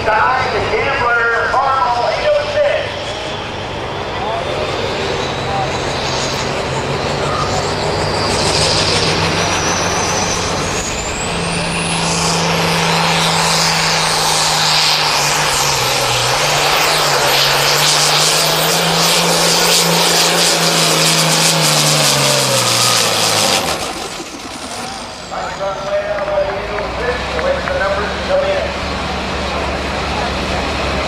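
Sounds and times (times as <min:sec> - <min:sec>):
tractor engine under full load: 0:00.0 - 0:31.0
high turbo whistle: 0:06.0 - 0:26.0.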